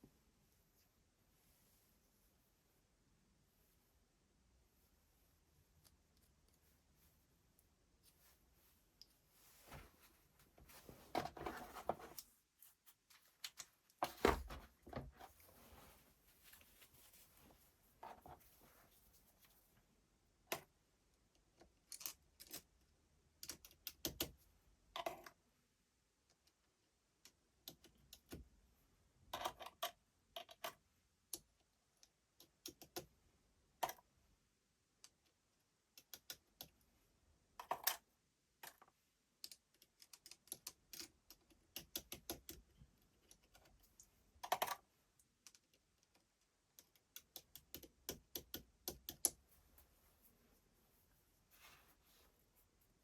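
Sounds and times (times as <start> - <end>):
small parts and tools clicking: 21.3 - 22.8, 37.6 - 49.4.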